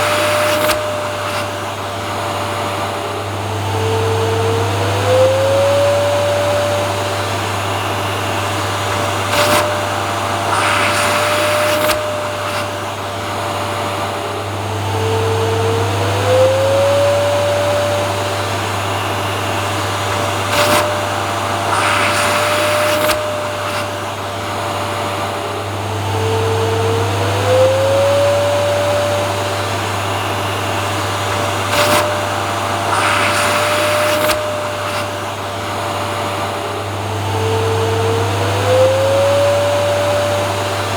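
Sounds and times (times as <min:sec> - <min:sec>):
vacuum cleaner motor whining: 0:00.0 - 0:40.9
rushes of hiss: 0:07.1 - 0:14.2, 0:18.3 - 0:25.4, 0:29.6 - 0:36.8.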